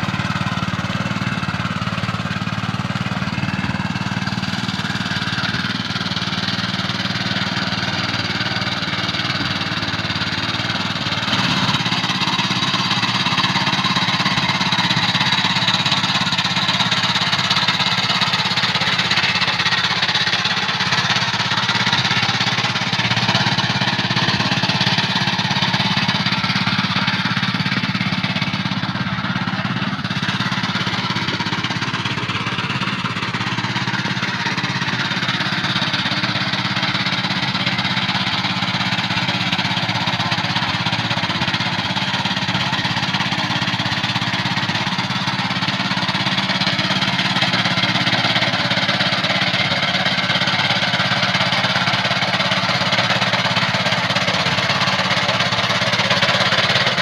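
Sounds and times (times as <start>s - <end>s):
tractor engine drone: 0.0s - 57.0s.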